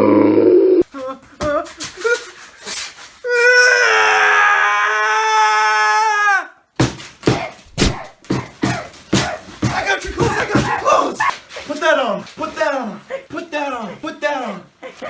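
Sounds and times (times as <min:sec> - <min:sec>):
person screaming: 0:03.2 - 0:06.6
sharp smacks: 0:06.8 - 0:11.5.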